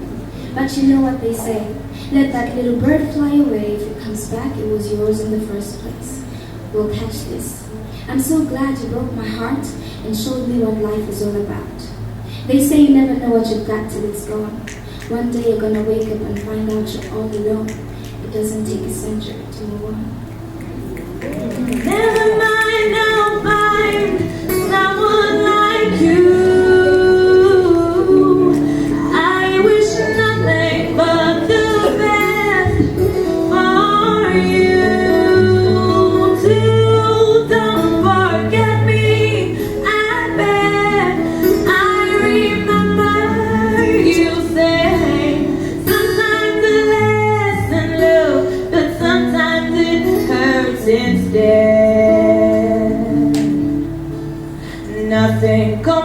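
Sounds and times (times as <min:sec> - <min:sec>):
woman singing: 0:12.5 - 0:20.1, 0:21.8 - 0:53.9, 0:54.8 - 0:56.0.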